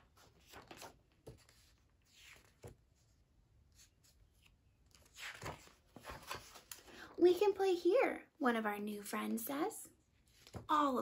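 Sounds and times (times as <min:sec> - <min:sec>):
book pages rustling: 0:00.0 - 0:07.0, 0:10.2 - 0:10.7.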